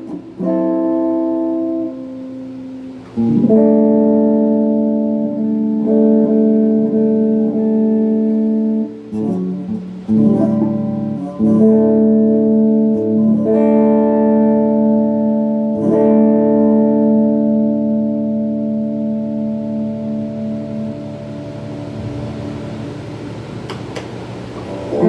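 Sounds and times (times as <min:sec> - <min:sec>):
electric guitar strumming chords: 0:00.0 - 0:25.0.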